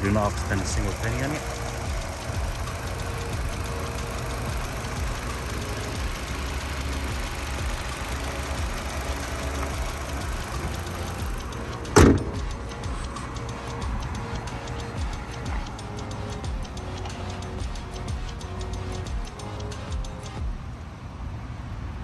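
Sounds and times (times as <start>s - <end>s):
car engine idling: 0.0s - 20.8s
car bonnet slamming shut: 11.9s - 12.5s.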